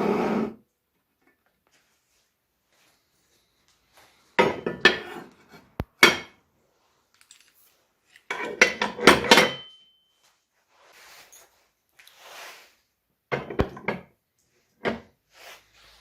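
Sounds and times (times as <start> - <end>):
metal parts clinking: 7.1 - 8.2.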